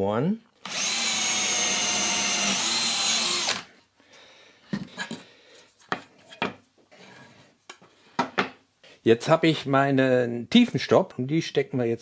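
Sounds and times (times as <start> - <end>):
power drill drilling wood: 0.6 - 3.7.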